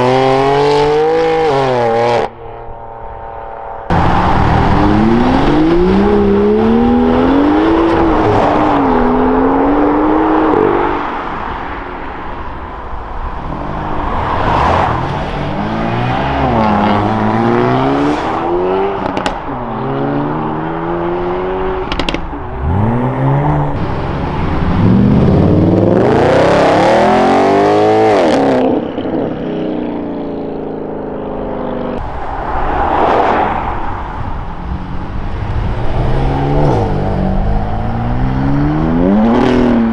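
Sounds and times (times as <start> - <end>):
car engines revving: 0.0 - 2.8, 3.9 - 39.9
exhaust pops and crackles: 19.0 - 19.5, 21.9 - 22.4.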